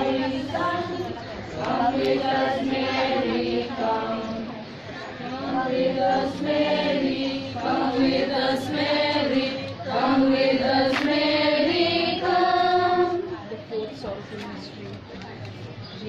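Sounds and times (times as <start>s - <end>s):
group singing a hymn: 0.0s - 13.5s.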